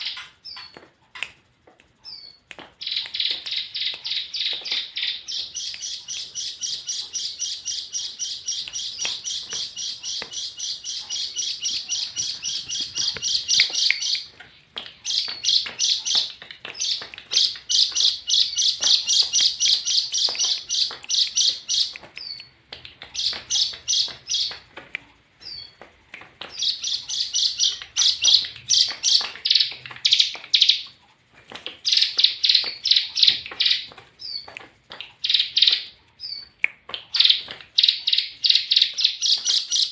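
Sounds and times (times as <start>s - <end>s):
bird chirping fast trill: 2.1s - 14.3s, 15.0s - 22.4s, 23.2s - 24.6s, 26.6s - 30.8s.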